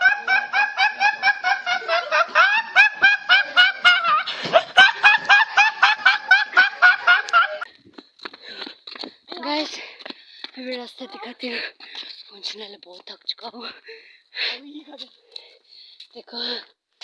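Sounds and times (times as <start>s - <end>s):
person laughing: 0.0s - 7.7s.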